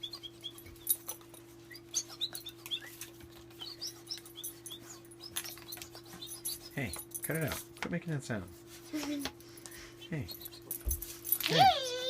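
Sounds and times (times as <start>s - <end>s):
dog whining in high squeaks: 0.0s - 6.8s, 11.4s - 12.0s.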